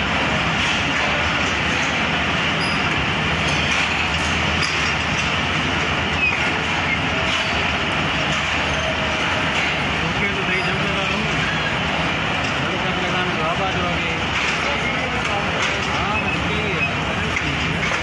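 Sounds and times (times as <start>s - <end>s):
train wheels rumbling: 0.0s - 18.0s
faint voices: 9.4s - 18.0s.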